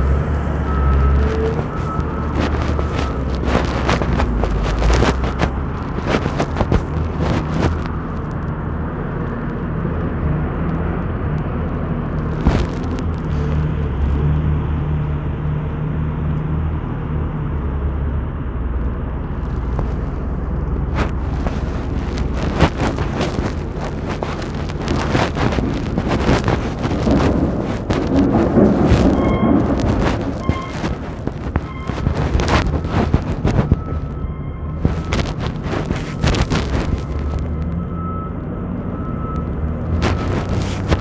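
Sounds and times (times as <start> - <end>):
vehicle engine humming: 0.0 - 41.0.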